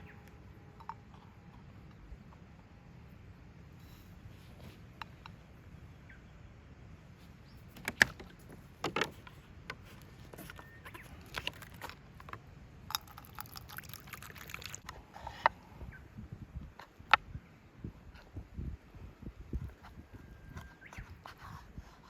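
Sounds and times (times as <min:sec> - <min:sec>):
rustling: 0:07.2 - 0:12.3.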